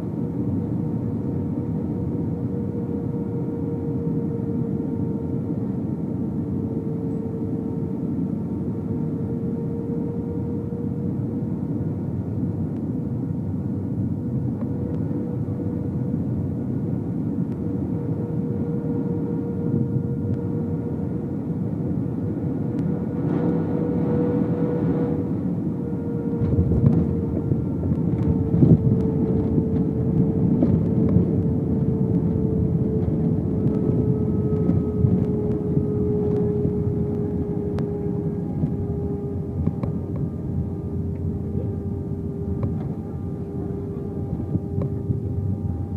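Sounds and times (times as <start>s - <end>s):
jet engines humming: 0.0s - 45.9s
low rumble: 22.3s - 45.9s.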